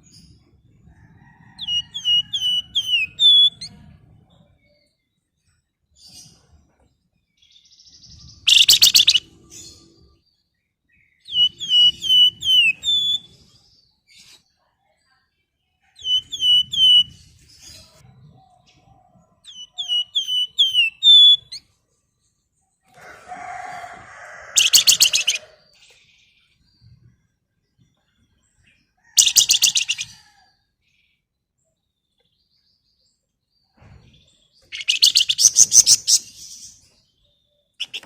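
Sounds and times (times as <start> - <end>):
songbird whistled notes: 8.4 - 9.3, 11.2 - 13.3, 19.5 - 21.6
songbird harsh rasping chatter: 8.5 - 9.3, 23.8 - 25.7, 34.7 - 36.7, 37.8 - 38.0.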